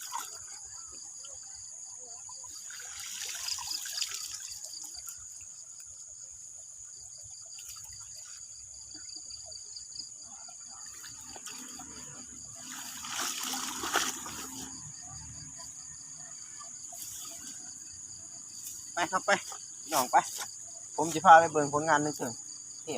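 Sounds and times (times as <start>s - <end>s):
water splashing: 0.0s - 0.6s, 2.6s - 5.2s, 10.8s - 15.4s
insects chirring: 0.0s - 22.9s
water trickling: 2.5s - 6.0s, 10.8s - 15.6s.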